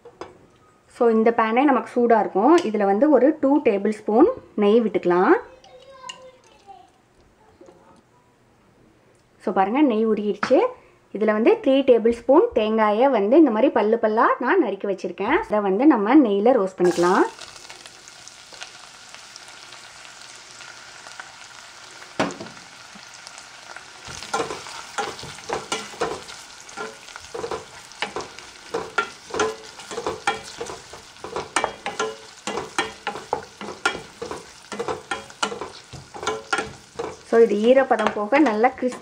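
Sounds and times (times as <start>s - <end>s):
coconut sizzling in a pot: 16.8s - 39.0s.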